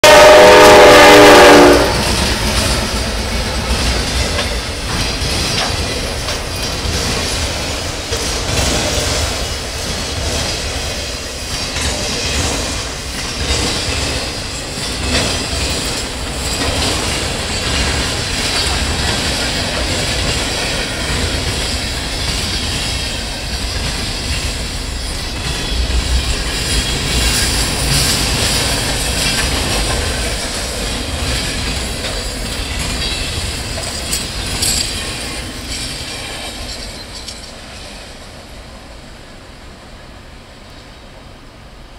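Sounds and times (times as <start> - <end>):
locomotive air horn chord: 0.0 - 2.5
freight train rumbling past: 0.0 - 41.9
wheels clattering over track: 2.0 - 38.1.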